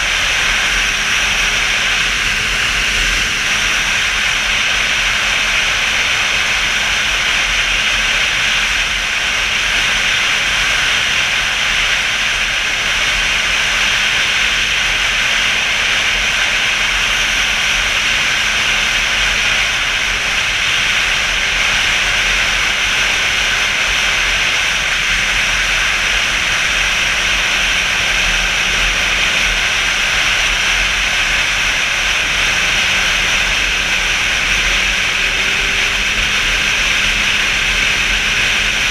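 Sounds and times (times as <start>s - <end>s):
faint motorcycle engine: 0.0s - 38.9s
wind and road noise: 0.0s - 38.9s.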